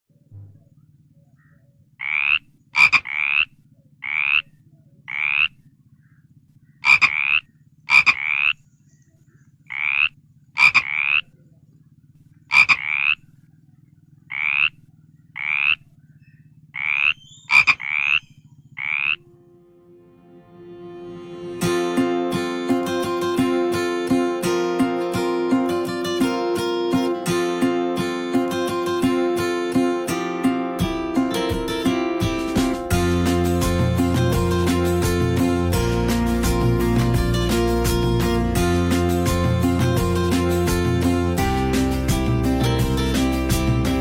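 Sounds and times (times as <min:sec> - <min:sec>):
low steady hum: 0:00.1 - 0:23.3
frog croaking: 0:01.3 - 0:08.6, 0:09.6 - 0:19.5.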